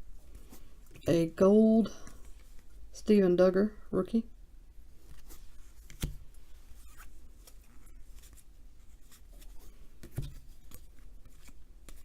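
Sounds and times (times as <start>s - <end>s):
trading cards sliding and flipping: 5.0s - 12.0s.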